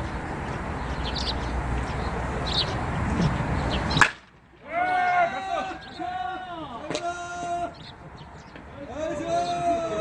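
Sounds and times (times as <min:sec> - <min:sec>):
outdoor noise: 0:00.0 - 0:10.0
bat striking ball: 0:03.9 - 0:04.4
voices: 0:04.6 - 0:10.0.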